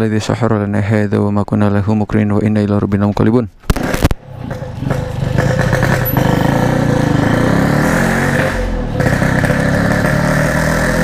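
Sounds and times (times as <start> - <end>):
two-stroke motorcycle engine running: 4.3 - 10.7.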